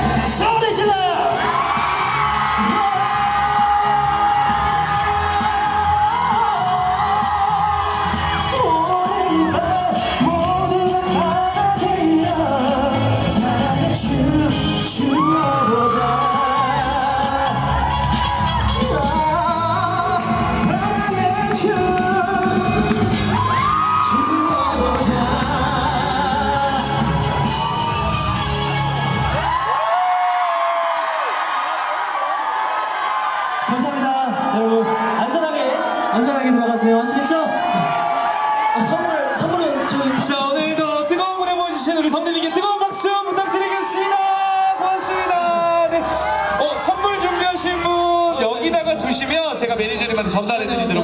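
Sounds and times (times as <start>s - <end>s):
pop backing track with beat: 0.0s - 29.5s
live band playing: 0.0s - 29.6s
person singing: 1.4s - 29.1s.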